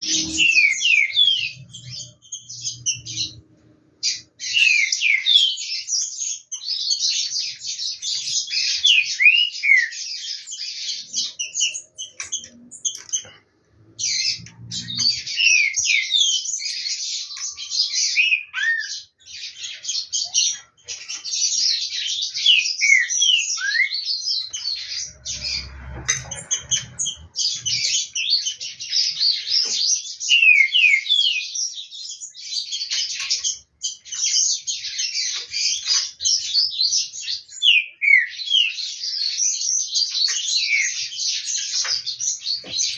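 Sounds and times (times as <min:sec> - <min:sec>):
bird singing whistled song: 0:00.0 - 0:13.4, 0:14.0 - 0:42.9
low rumble: 0:24.6 - 0:28.0.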